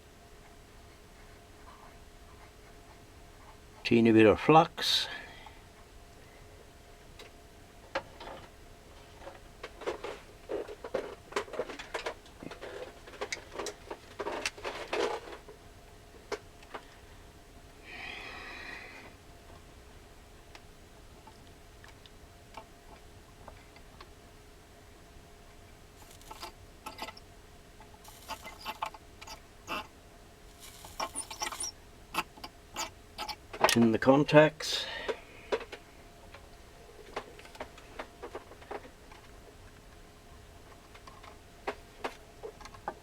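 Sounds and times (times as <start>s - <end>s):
small tools clicking and scraping: 26.0s - 27.2s, 27.8s - 29.9s, 30.5s - 33.8s.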